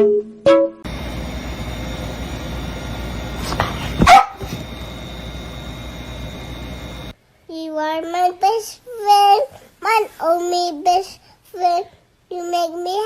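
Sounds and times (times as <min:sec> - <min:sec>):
steady background hiss: 0:00.9 - 0:13.0
dog barking: 0:03.9 - 0:04.6.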